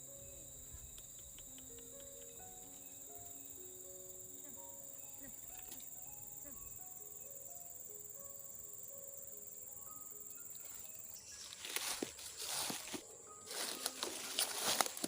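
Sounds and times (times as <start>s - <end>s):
crickets chirping: 0.0s - 15.0s
rustling noise: 11.5s - 15.0s.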